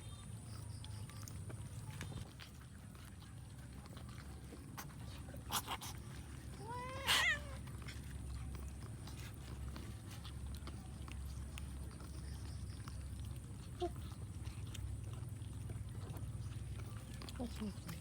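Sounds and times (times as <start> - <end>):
cat meowing: 6.6 - 7.6.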